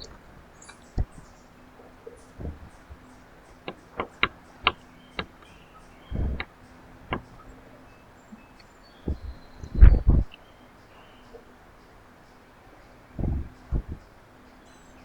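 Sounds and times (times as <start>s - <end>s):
birds tapping at feeder: 0.0s - 15.0s
short low thump: 2.4s - 2.9s, 9.0s - 10.3s, 13.2s - 14.0s.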